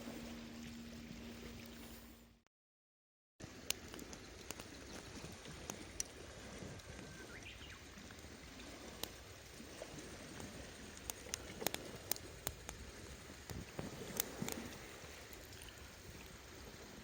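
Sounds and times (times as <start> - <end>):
low steady rumble: 0.0 - 2.4
campfire crackling and popping: 3.5 - 6.3, 9.8 - 16.4.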